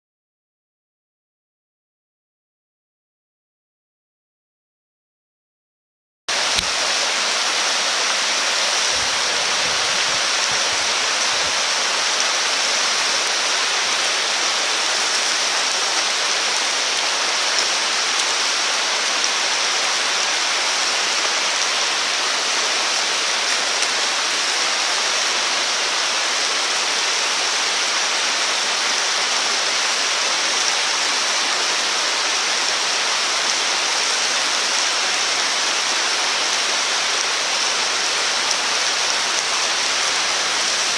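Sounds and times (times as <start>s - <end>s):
rushing water: 6.3s - 40.9s.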